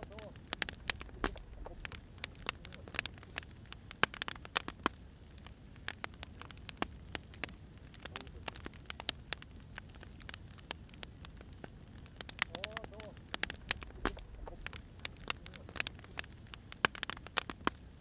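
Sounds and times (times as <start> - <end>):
low steady rumble: 0.0 - 3.8, 13.3 - 15.9
wood fire crackling: 0.0 - 18.0.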